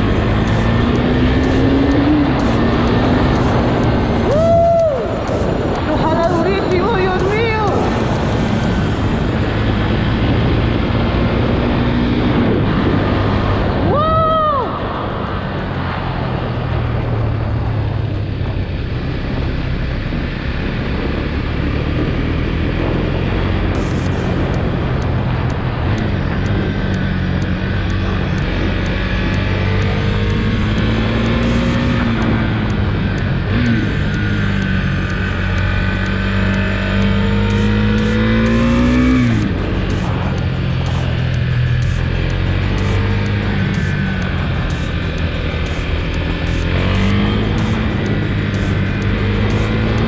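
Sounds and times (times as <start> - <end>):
motorcycle engine running: 0.0 - 50.0
wind rushing over microphone: 0.0 - 50.0.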